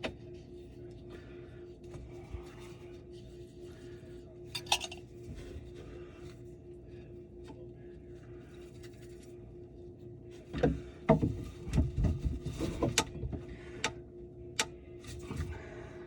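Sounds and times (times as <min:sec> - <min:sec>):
steady low hum: 0:00.0 - 0:16.0
objects knocking and clattering: 0:10.6 - 0:13.4.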